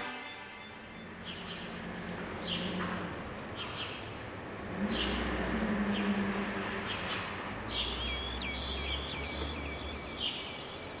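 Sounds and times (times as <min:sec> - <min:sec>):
low hum: 0:00.0 - 0:11.0
birds chirping: 0:07.7 - 0:11.0.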